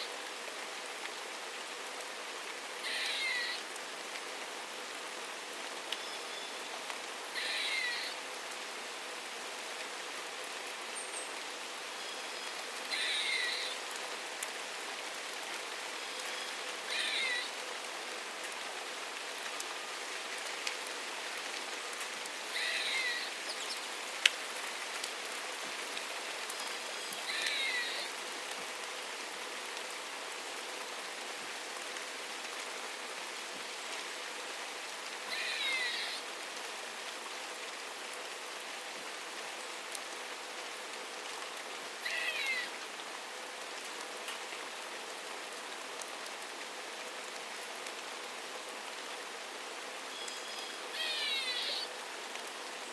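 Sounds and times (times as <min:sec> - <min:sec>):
rain falling: 0:00.0 - 0:52.9
bird calling: 0:02.8 - 0:03.6, 0:07.4 - 0:08.2, 0:12.0 - 0:13.8, 0:16.2 - 0:17.6, 0:22.5 - 0:23.8, 0:27.0 - 0:28.1, 0:35.3 - 0:36.2, 0:42.0 - 0:42.7, 0:50.1 - 0:52.0.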